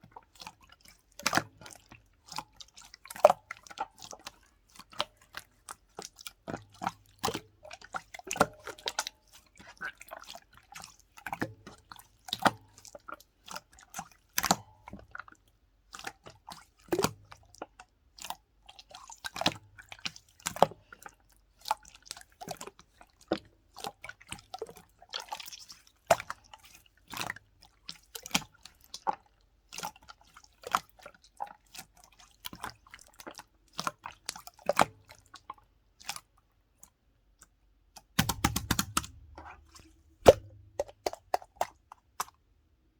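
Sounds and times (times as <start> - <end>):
slime squished by hand: 38.2 - 42.3.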